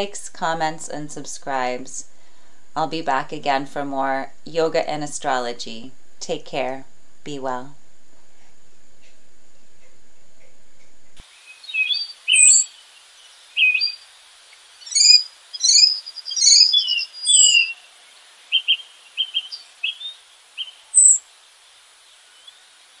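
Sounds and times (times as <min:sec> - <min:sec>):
faint steady hiss: 0:00.0 - 0:23.0
songbirds chirping and trilling: 0:11.4 - 0:21.2.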